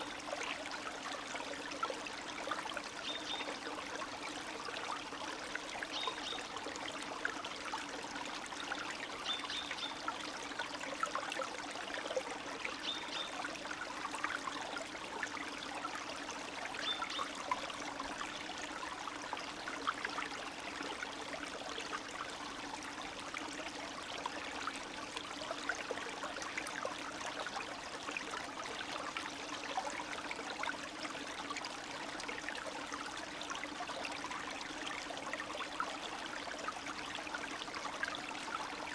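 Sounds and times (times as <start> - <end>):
stream water trickling: 0.0 - 38.9.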